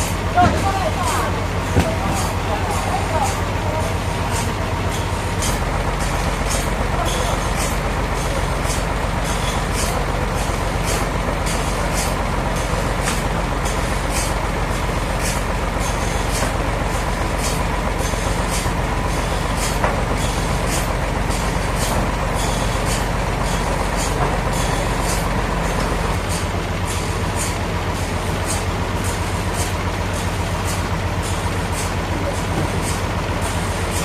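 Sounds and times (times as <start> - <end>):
sawmill machinery running: 0.0 - 34.0.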